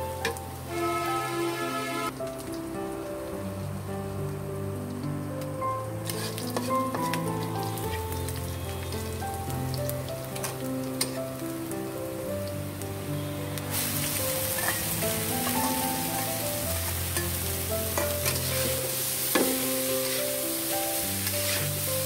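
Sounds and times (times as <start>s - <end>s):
background music of held notes: 0.0s - 22.0s
onions sizzling in hot oil: 0.0s - 22.0s.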